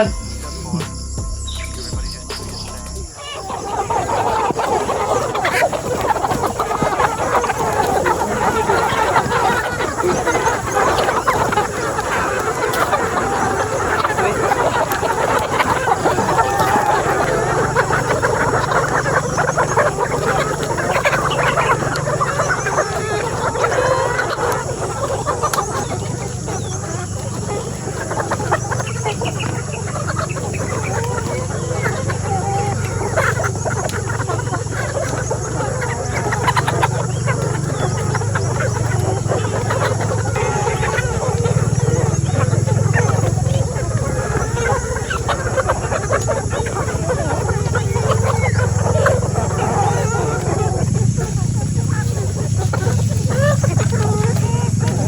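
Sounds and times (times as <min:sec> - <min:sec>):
steady low hum: 0:00.0 - 0:03.2
hens clucking: 0:00.0 - 0:55.0.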